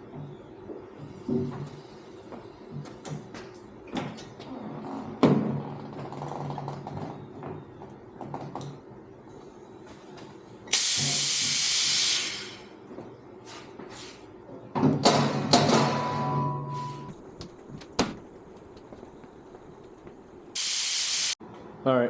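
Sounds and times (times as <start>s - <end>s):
loud steady hiss: 10.7s - 12.7s, 20.6s - 21.4s.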